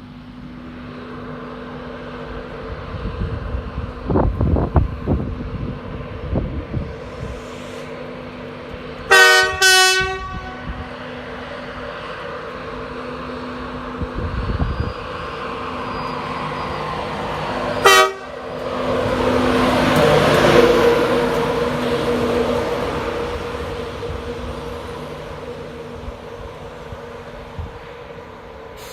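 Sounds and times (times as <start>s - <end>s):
locomotive running noise: 0.0s - 28.9s
two-tone locomotive horn: 9.1s - 11.1s, 17.8s - 18.6s.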